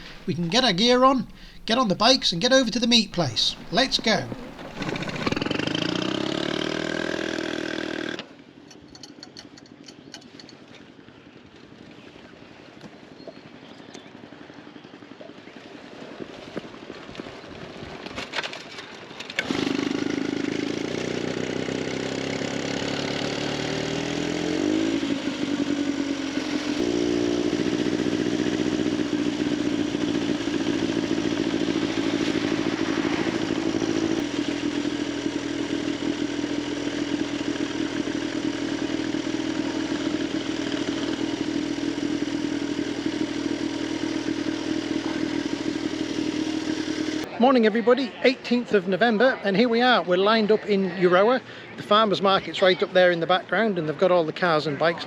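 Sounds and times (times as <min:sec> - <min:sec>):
motorcycle engine running: 0:00.0 - 0:08.3, 0:19.5 - 0:47.3
clicks and clatter: 0:08.7 - 0:10.6.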